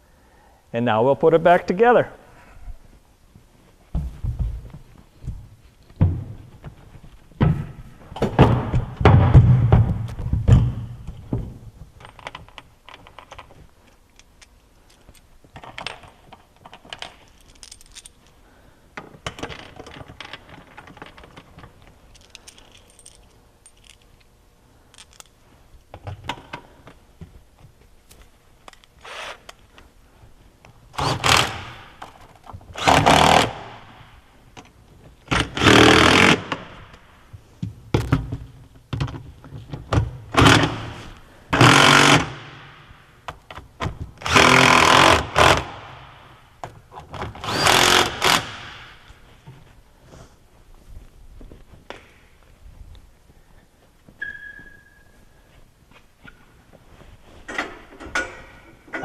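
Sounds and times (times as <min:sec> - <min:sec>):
power tool driving bolts: 0:28.8 - 0:29.6, 0:30.9 - 0:34.1, 0:35.3 - 0:37.0, 0:40.3 - 0:42.8, 0:44.2 - 0:46.4, 0:47.1 - 0:49.0.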